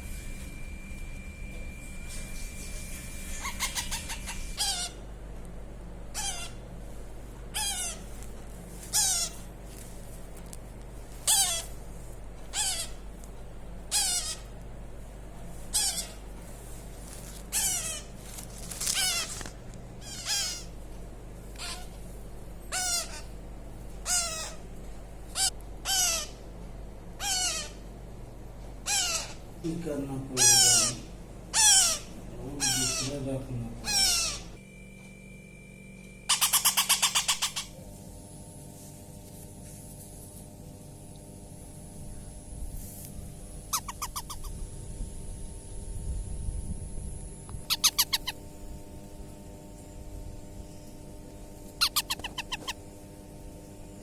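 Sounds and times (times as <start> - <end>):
baby parrot squawking: 3.3 - 5.0, 6.1 - 6.6, 7.5 - 8.2, 8.8 - 9.5, 11.2 - 11.8, 12.5 - 13.0, 13.9 - 14.5, 15.7 - 16.2, 17.5 - 18.1, 18.8 - 20.8, 21.6 - 22.0, 22.7 - 23.4, 24.0 - 24.7, 25.3 - 26.4, 27.2 - 27.8, 28.8 - 29.4, 30.4 - 33.2, 33.8 - 34.6, 36.3 - 37.8, 43.7 - 44.6, 47.7 - 48.5, 51.7 - 52.9.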